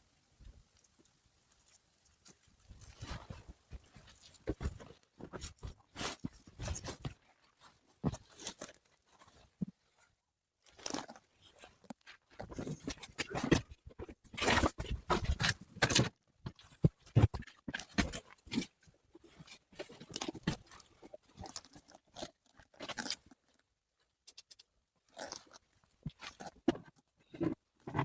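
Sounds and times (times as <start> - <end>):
crunching and scraping: 1.5 - 28.0.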